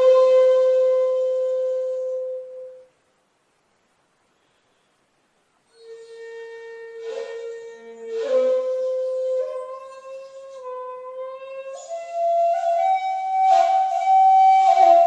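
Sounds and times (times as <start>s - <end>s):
shakuhachi flute long held note: 0.0s - 2.9s, 5.7s - 15.0s
breathy air noise: 3.8s - 5.7s.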